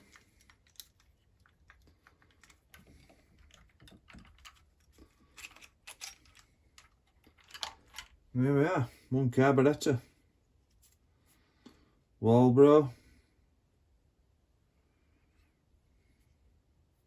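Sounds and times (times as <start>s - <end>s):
small parts clicking and tapping: 0.0s - 8.2s.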